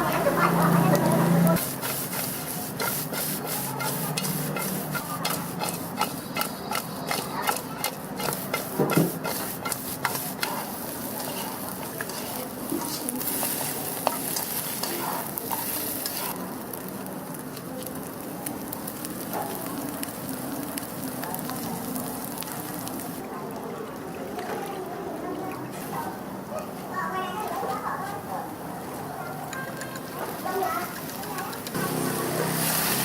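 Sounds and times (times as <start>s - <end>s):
spatula scraping a wok: 0.0s - 16.4s, 29.7s - 33.0s
food sizzling in a wok: 0.0s - 23.2s, 29.0s - 33.0s.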